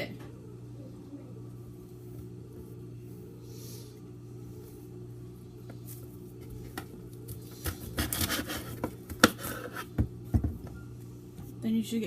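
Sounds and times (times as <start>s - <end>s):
steady low hum: 0.0s - 12.0s
kitchen scrapes and rustles: 7.6s - 9.9s.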